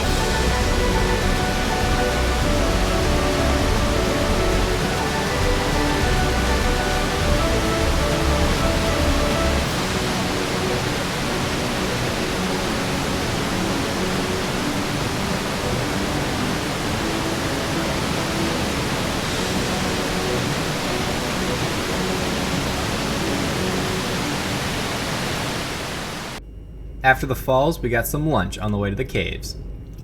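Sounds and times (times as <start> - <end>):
waterfall rushing: 0.0 - 26.4.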